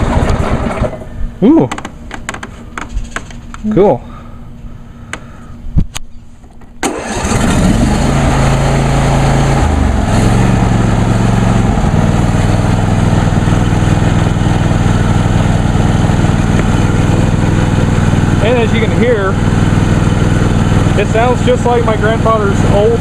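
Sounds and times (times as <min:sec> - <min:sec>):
lawn tractor engine: 0:00.0 - 0:01.2, 0:06.8 - 0:23.0.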